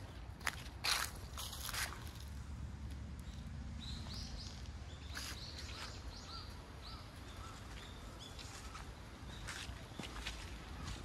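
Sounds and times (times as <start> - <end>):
bird chirping: 3.2 - 11.0.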